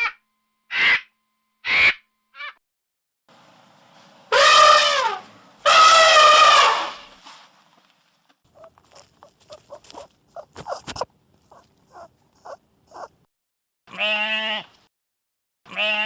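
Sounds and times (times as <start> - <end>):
harsh animal calls: 8.5 - 13.2
long pitched animal calls: 8.6 - 13.1.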